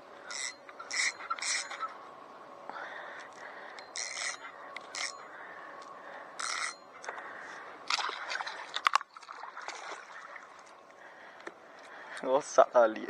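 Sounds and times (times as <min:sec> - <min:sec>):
water splashing around kayak: 0:07.8 - 0:11.1.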